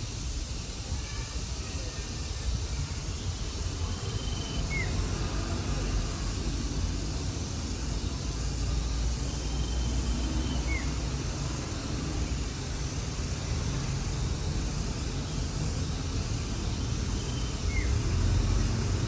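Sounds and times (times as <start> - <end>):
even hiss: 0.0 - 19.0.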